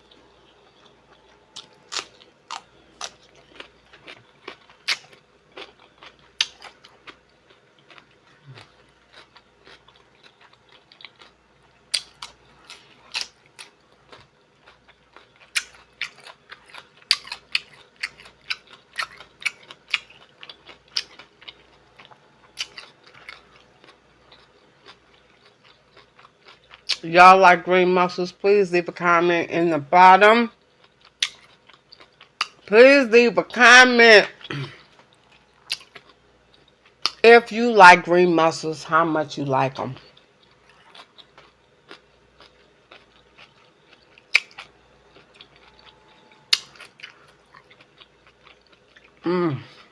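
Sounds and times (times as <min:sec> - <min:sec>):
chewing: 0:00.0 - 0:27.0, 0:34.4 - 0:37.2, 0:40.0 - 0:49.9.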